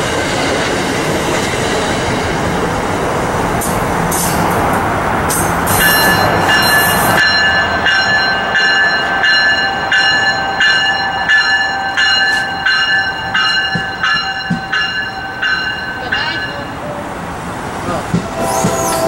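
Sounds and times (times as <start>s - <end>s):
train passing: 0.0s - 19.0s
pulsing high ringing tones: 5.7s - 17.0s, 18.2s - 19.0s.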